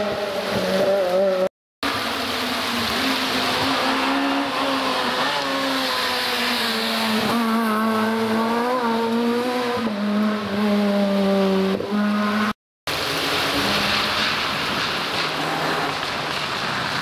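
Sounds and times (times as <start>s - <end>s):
rally car engine at high revs: 0.0s - 17.0s.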